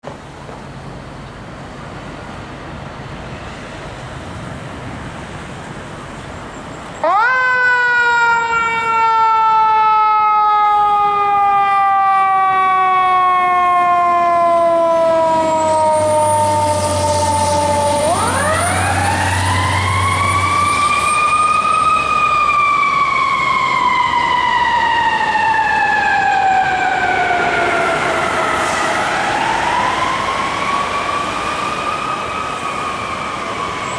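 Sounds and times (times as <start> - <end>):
engine and traffic noise: 0.0 - 33.9
fire truck siren: 7.0 - 33.9.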